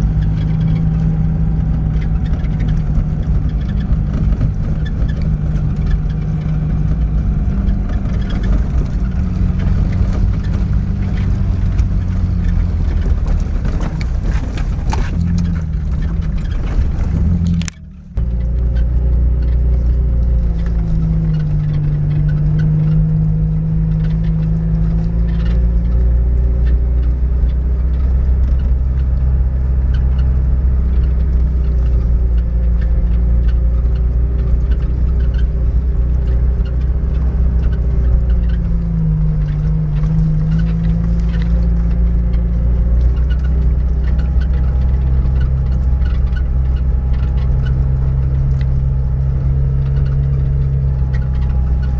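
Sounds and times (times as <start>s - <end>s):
car engine under load: 0.0s - 51.9s
body knocks and rattles: 0.1s - 23.0s.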